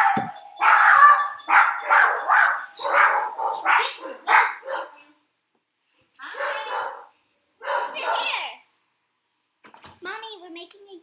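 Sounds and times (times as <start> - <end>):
dog barking: 0.0 - 5.1, 6.2 - 8.5.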